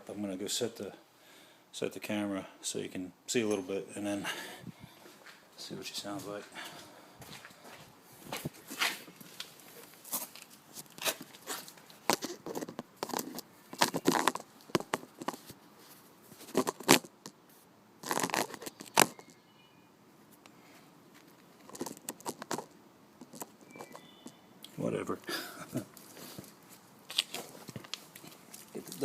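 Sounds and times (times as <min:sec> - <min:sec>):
camera handling rustles and knocks: 0:08.3 - 0:15.6, 0:16.3 - 0:17.4, 0:18.0 - 0:19.4.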